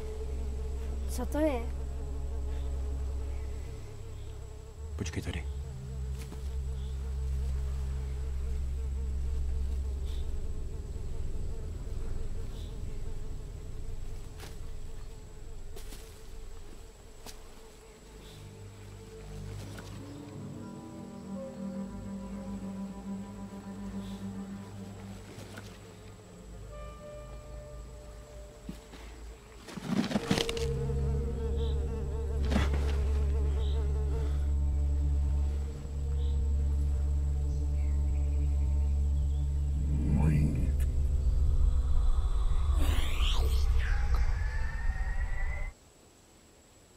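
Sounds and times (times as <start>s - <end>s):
flies buzzing: 0.0s - 45.8s
low drone: 0.0s - 45.8s
rustling: 28.6s - 30.9s.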